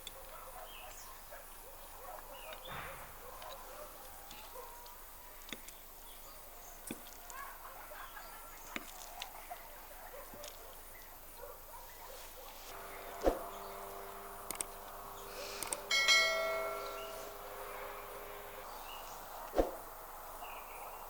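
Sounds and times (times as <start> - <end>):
sharp clicks: 14.4 - 14.8, 15.6 - 15.9.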